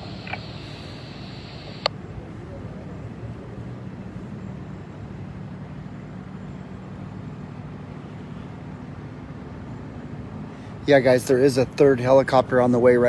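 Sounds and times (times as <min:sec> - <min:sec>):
vehicle engine idling: 0:00.0 - 0:01.9.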